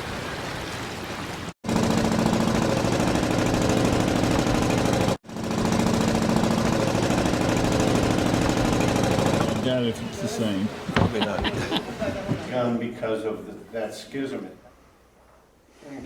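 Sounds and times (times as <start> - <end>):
engine running with pulsing: 1.6 - 9.7.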